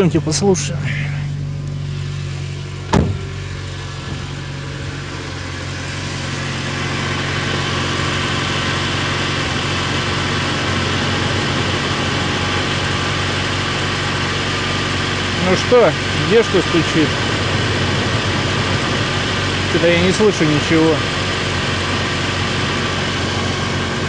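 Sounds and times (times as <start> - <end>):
car engine idling: 0.0 - 24.0
sharp knock: 2.9 - 3.3.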